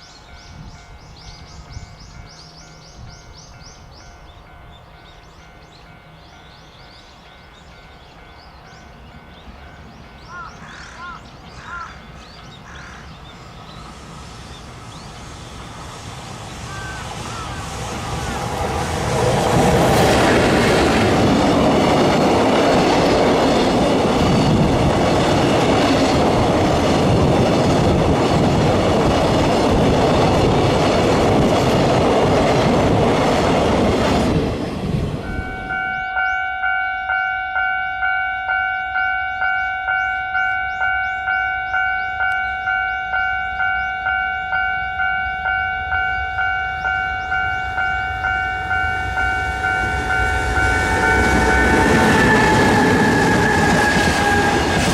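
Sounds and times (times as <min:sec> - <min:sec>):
freight train passing: 0:00.0 - 0:54.9
level-crossing bell ringing: 0:35.2 - 0:53.7.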